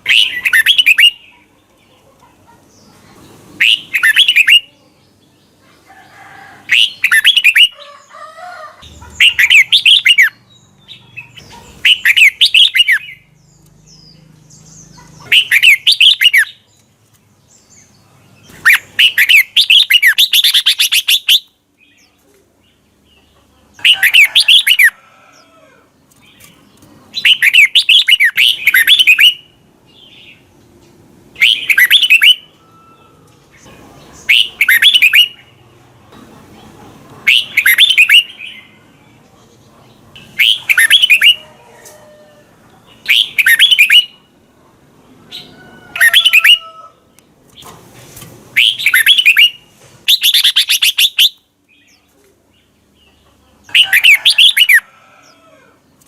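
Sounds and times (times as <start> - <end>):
bird singing whistled phrases: 0.0 - 1.2, 6.7 - 7.8, 15.3 - 16.5, 31.4 - 33.0, 34.3 - 35.4, 37.3 - 38.3, 40.4 - 41.4, 43.1 - 44.2, 48.6 - 51.4.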